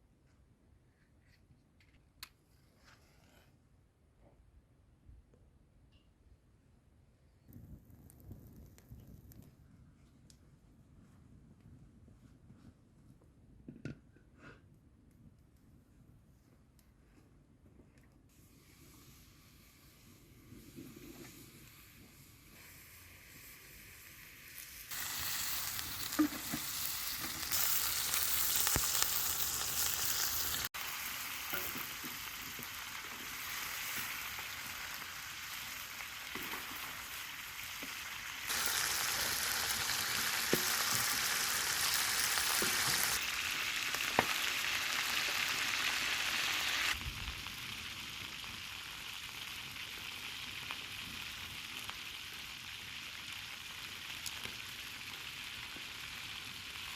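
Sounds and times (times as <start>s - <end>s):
food sizzling in a hot pan: 18.4s - 56.9s.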